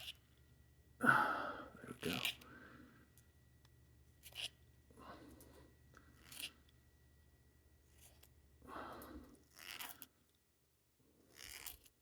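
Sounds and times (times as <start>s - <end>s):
razor blade scraping pencil wood: 4.2s - 4.6s, 9.4s - 10.1s, 11.2s - 12.0s.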